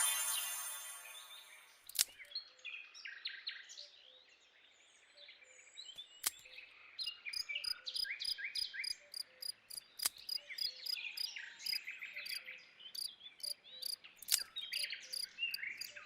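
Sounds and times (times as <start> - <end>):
faint birds chirping: 0.0 - 16.0
sharp clicks: 1.9 - 2.3, 6.2 - 6.5, 9.7 - 10.4, 14.2 - 14.5
crickets chirping: 13.0 - 16.0.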